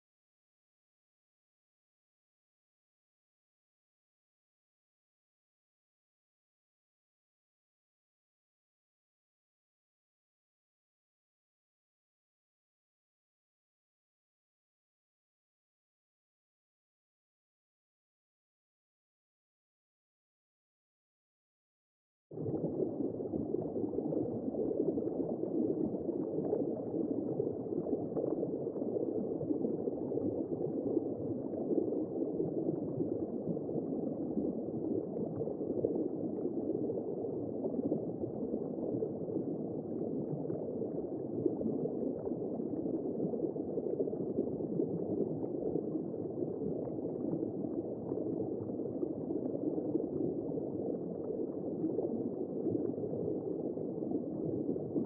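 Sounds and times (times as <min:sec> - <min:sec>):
muffled gurgling whoosh: 0:22.4 - 0:55.0.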